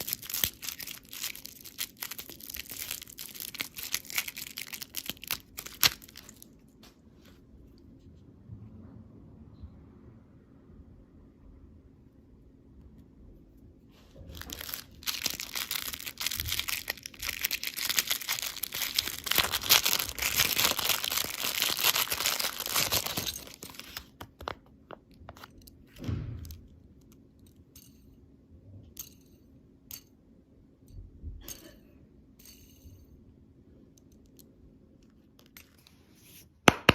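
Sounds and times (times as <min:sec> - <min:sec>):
candy wrapper crinkling: 0:00.0 - 0:06.6, 0:14.2 - 0:25.9.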